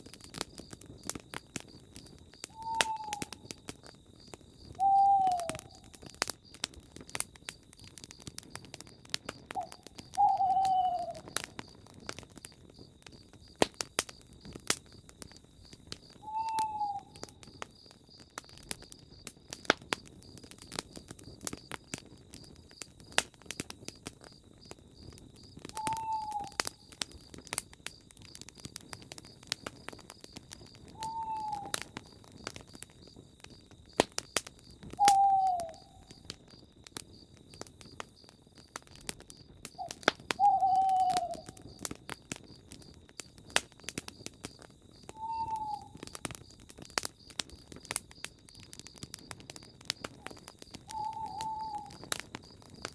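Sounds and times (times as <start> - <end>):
campfire crackling and popping: 0.0 - 52.9
night insects trilling: 0.0 - 52.9
owl hooting: 2.5 - 3.3, 4.8 - 5.9, 9.5 - 11.3, 16.2 - 17.2, 25.8 - 26.6, 30.9 - 31.8, 35.0 - 36.2, 39.9 - 41.6, 45.2 - 46.1, 50.2 - 52.0.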